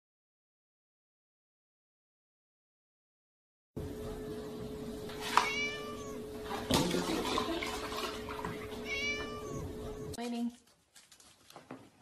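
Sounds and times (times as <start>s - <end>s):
steady hum: 3.8s - 10.2s
kitten meowing: 5.3s - 6.2s, 8.7s - 10.1s
milk pouring into plastic tub: 6.4s - 8.8s.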